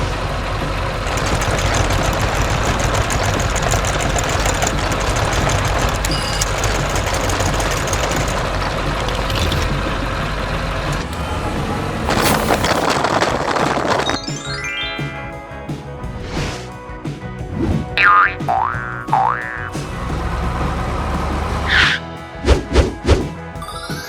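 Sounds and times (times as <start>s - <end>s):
heavy truck engine rumbling: 0.0s - 14.8s, 19.1s - 22.0s.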